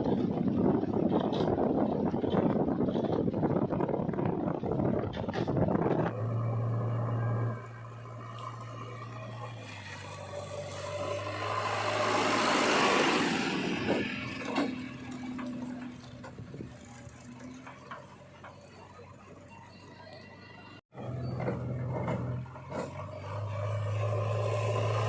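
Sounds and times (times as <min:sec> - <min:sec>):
diesel engine humming: 0:00.0 - 0:25.0.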